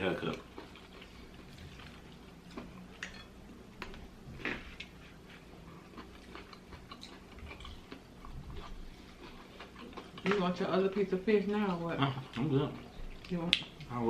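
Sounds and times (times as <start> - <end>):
fried food crunching: 4.4 - 11.1.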